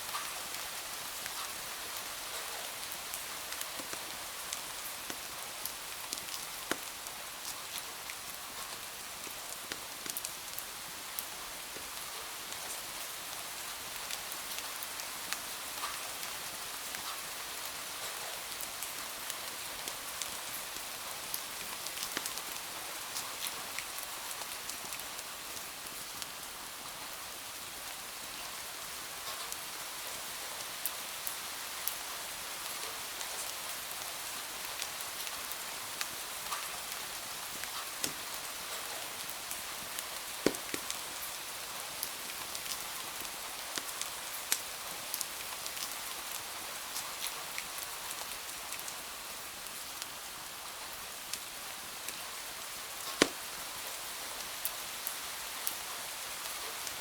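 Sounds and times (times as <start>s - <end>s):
steady rain hiss: 0.0s - 57.0s
wood fire crackling and popping: 37.6s - 38.8s, 40.0s - 41.4s, 42.0s - 44.7s, 53.0s - 53.7s.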